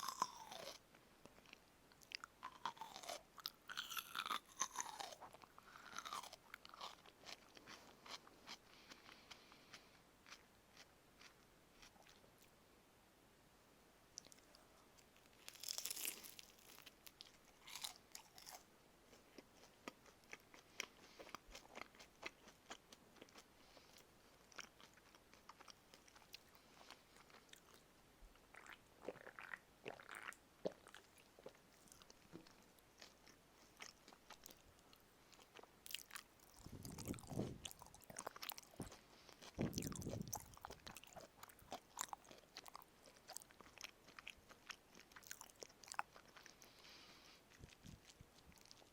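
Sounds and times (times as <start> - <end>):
crunchy bites and chewing: 0.0 - 0.8, 1.4 - 12.2, 15.1 - 27.8, 28.5 - 46.9
crust crackling: 15.1 - 18.6.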